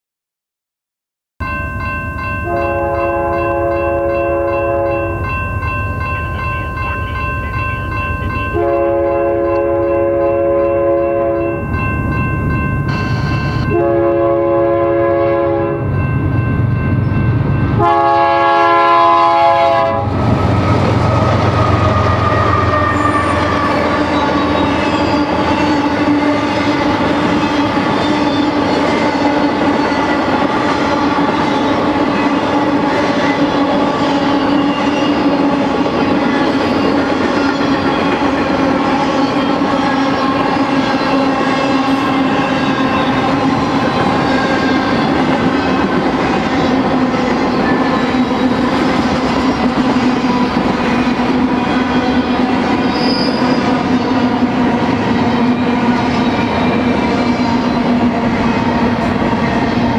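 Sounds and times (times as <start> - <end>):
crossing bell ringing: 1.4 - 58.1
locomotive air horn: 2.5 - 5.2, 8.6 - 11.6, 13.7 - 15.9, 17.8 - 20.2, 20.8 - 26.9
locomotive rumble: 13.2 - 26.0.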